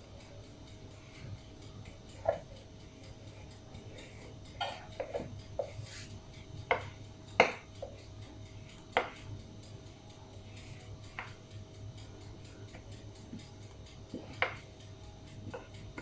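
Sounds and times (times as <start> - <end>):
utensil knocking on kitchenware: 6.7 - 8.0.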